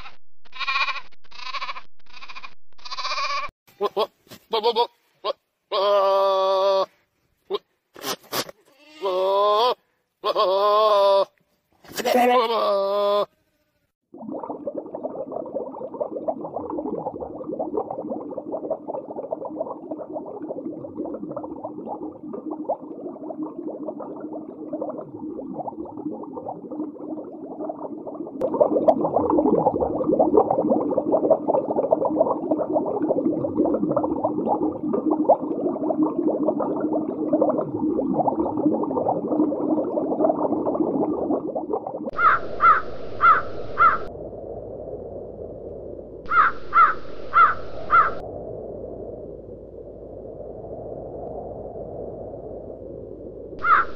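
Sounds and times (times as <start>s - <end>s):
underwater bubbling crackle: 14.1s - 42.2s, 43.0s - 53.9s
harsh bird calls: 42.2s - 44.0s, 46.3s - 48.2s.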